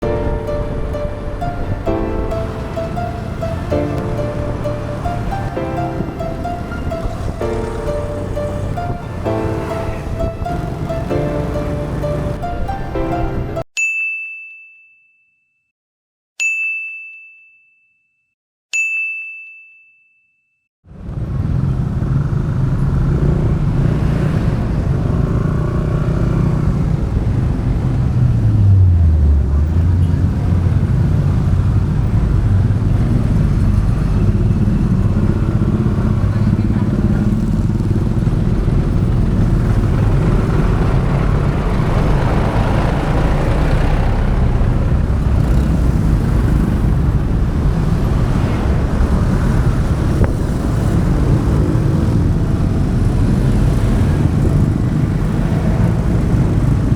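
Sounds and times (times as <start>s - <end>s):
road and wind noise: 0.0s - 13.6s, 20.9s - 56.9s
motorbike engine running: 32.6s - 56.9s.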